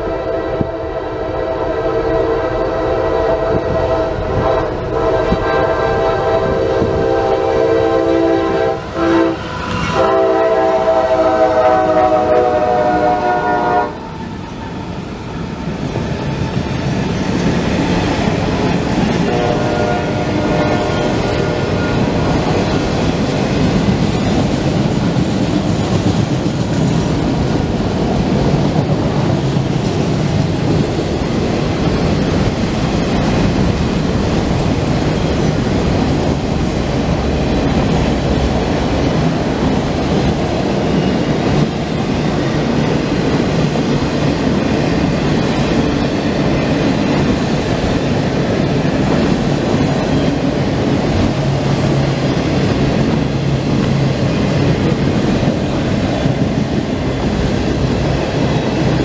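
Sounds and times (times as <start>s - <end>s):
freight train rolling past: 0.0s - 59.0s
steel wheels clattering on rails: 20.5s - 59.0s.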